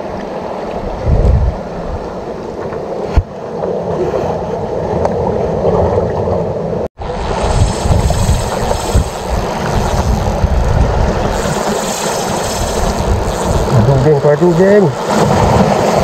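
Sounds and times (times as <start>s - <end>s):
sea waves: 0.0s - 16.0s
wind buffeting microphone: 0.8s - 2.2s, 4.9s - 14.2s.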